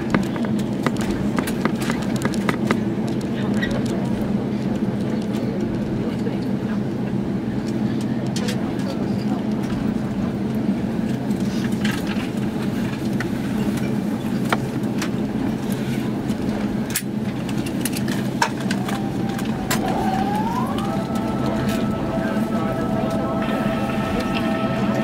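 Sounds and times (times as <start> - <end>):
airliner cabin rumble: 0.0 - 25.0
rising whine: 17.9 - 25.0.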